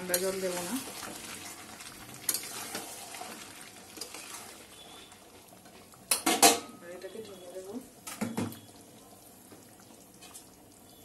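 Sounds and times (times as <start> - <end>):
curry sizzling in a pan: 0.0 - 11.0
metal spatula scraping: 2.3 - 3.2.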